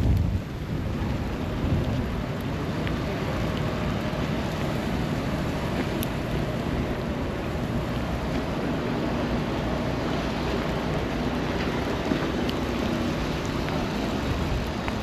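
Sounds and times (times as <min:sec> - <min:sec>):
city traffic rumble: 0:00.0 - 0:15.0
wind on microphone: 0:00.0 - 0:15.0.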